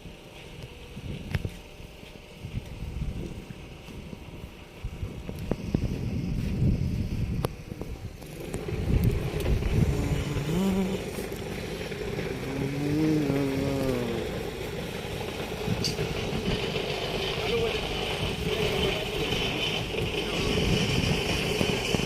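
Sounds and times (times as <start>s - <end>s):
wind buffeting microphone: 0.0s - 22.0s
vehicle engine passing: 5.6s - 22.0s.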